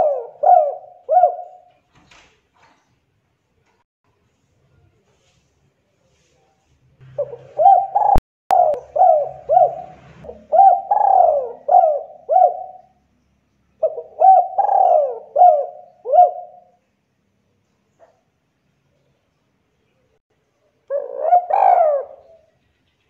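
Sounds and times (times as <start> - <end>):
dove cooing: 0.0 - 1.7, 7.0 - 13.0, 13.8 - 16.8, 20.9 - 22.5.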